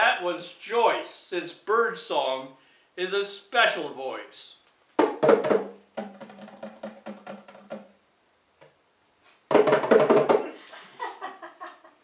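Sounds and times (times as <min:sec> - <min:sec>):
bongos played by hand: 0:05.0 - 0:08.0, 0:09.5 - 0:10.5.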